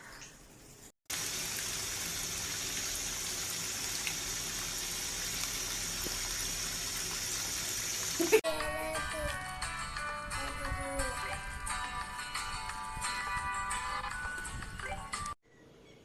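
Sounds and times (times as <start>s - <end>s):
water gushing into washing machine: 1.1s - 8.4s.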